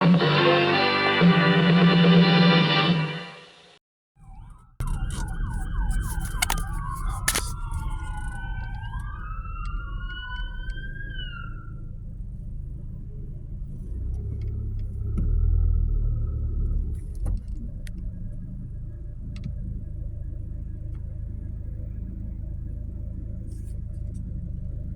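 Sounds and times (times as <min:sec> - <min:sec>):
siren wail: 0:04.2 - 0:12.0
siren yelp: 0:04.2 - 0:12.0
vehicle rumble: 0:04.2 - 0:24.9.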